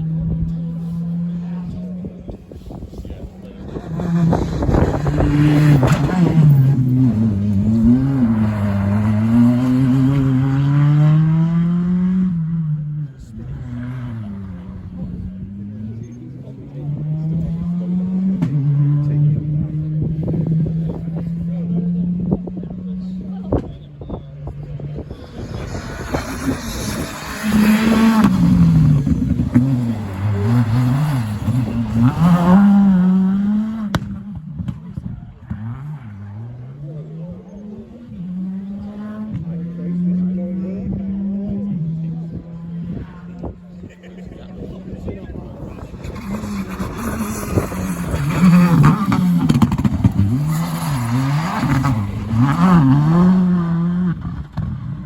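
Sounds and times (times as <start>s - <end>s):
rally car engine accelerating: 0.0s - 55.0s
engine crackles: 45.2s - 55.0s.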